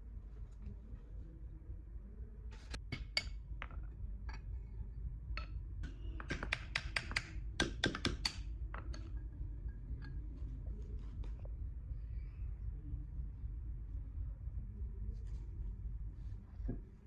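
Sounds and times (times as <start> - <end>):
low steady hum: 0.0 - 17.0
clicks and taps of metal tools: 5.4 - 9.2.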